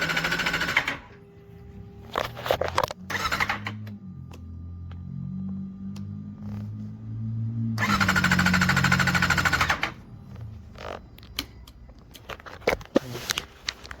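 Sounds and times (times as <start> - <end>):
motorcycle starter cranking: 0.0 - 1.1, 3.1 - 3.9, 7.8 - 10.0.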